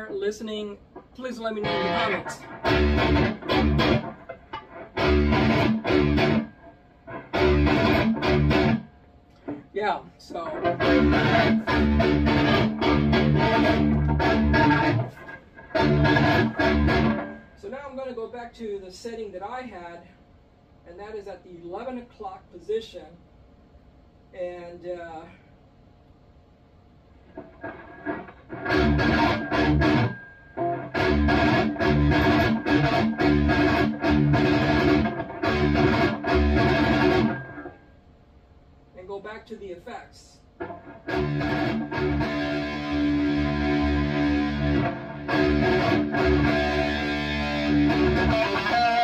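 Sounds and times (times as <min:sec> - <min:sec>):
distorted electric guitar riff: 0:01.0 - 0:09.6, 0:10.4 - 0:17.6, 0:27.3 - 0:37.9, 0:40.6 - 0:49.0.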